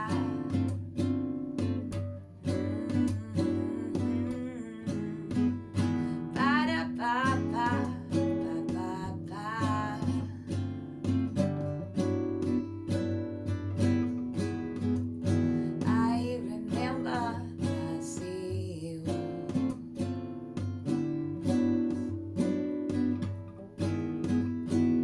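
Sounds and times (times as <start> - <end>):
acoustic guitar playing: 0.0 - 25.0
person singing long notes: 2.5 - 5.8.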